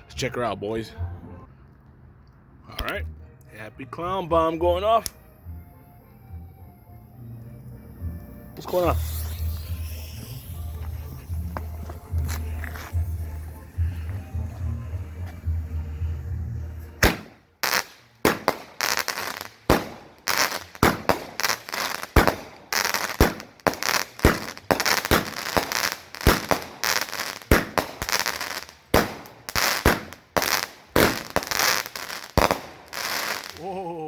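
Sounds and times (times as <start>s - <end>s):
firework crackle: 8.4s - 14.8s, 17.0s - 33.8s
firework bangs: 17.0s - 33.6s.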